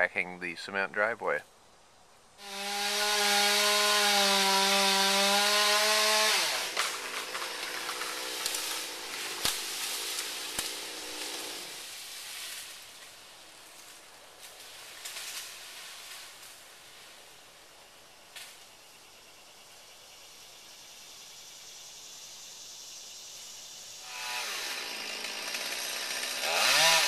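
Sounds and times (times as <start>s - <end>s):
chainsaw revving and idling: 2.4s - 11.9s, 24.0s - 27.0s.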